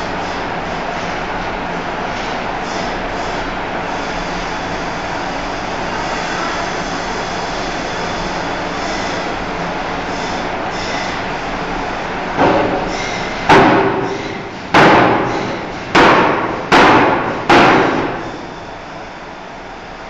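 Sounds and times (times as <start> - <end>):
hammer striking steel bar: 12.4 - 18.3.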